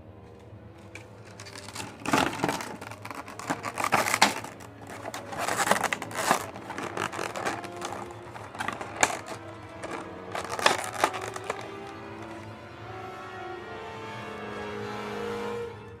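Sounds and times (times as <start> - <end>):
faint background music: 0.0 - 16.0
packaging crinkling and rustling: 0.8 - 12.5.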